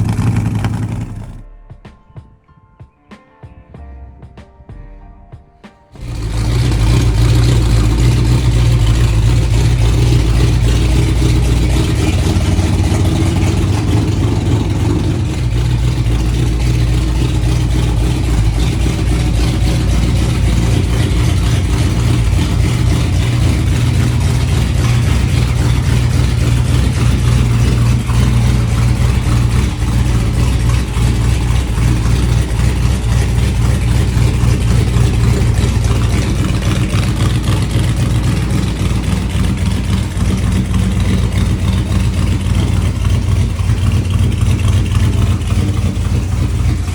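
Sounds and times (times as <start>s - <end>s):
car engine idling: 0.0s - 1.5s, 5.9s - 46.9s.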